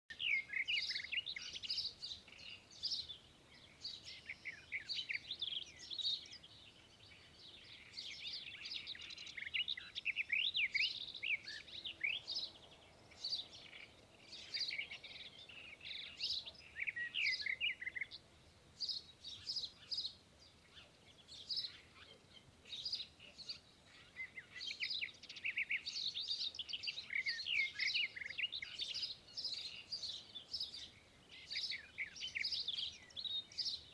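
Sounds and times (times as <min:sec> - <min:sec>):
small birds chirping: 0:00.1 - 0:33.9.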